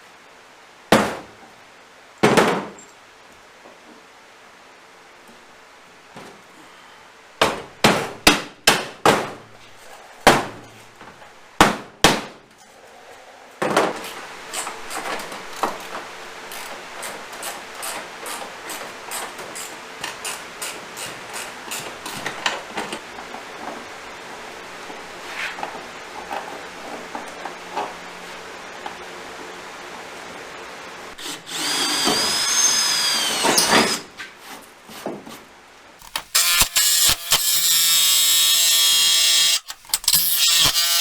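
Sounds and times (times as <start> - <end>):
rasping noise with clicks: 36.0 - 41.0.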